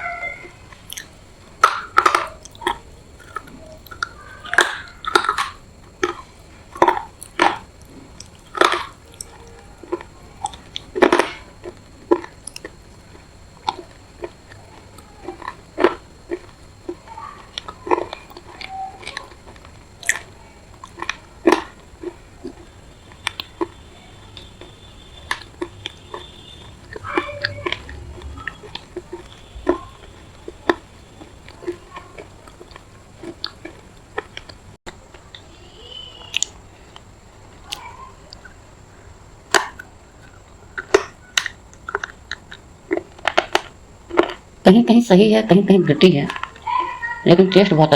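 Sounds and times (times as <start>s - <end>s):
chewing and crunching clay: 0.0s - 44.6s, 45.9s - 47.9s
mouth sounds: 0.0s - 47.9s.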